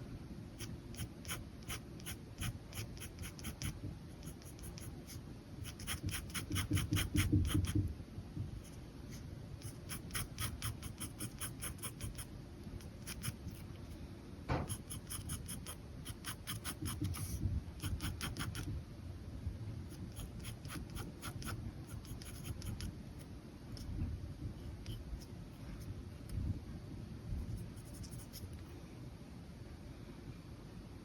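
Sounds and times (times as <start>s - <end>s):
pen scratching on paper: 0.6s - 7.8s, 8.5s - 13.7s, 14.6s - 18.7s, 19.9s - 22.9s, 27.4s - 28.6s
soft knock: 14.5s - 14.7s.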